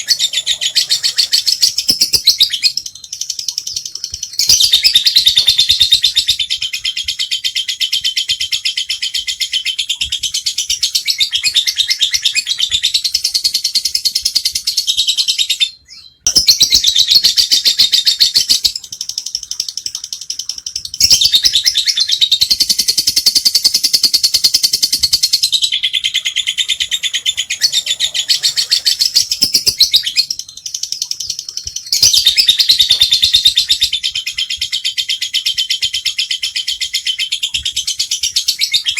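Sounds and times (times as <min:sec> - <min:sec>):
lovebird chattering: 0:00.0 - 0:07.2, 0:16.3 - 0:37.3.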